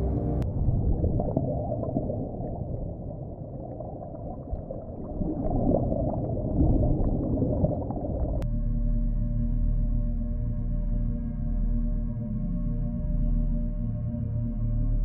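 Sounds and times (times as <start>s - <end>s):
faint crackles and bubbling: 0.0s - 8.5s
underwater rumbling water: 0.0s - 8.5s.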